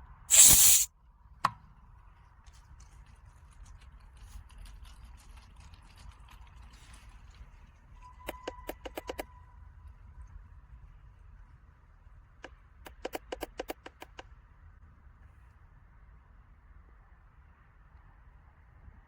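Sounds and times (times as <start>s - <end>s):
sharp clicks: 0.3s - 0.9s, 12.9s - 14.2s.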